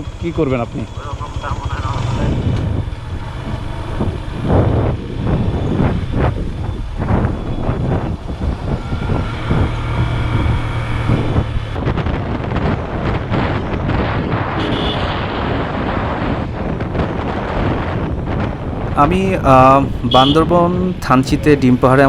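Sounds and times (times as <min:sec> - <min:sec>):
motorcycle engine running: 0:00.0 - 0:15.0
rough road noise: 0:00.0 - 0:22.0
wind buffeting microphone: 0:00.0 - 0:22.0.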